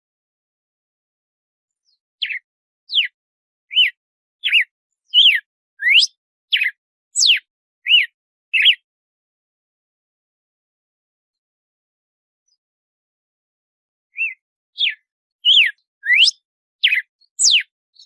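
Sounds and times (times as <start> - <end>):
bird whistling song: 1.8 - 8.8, 14.1 - 18.0.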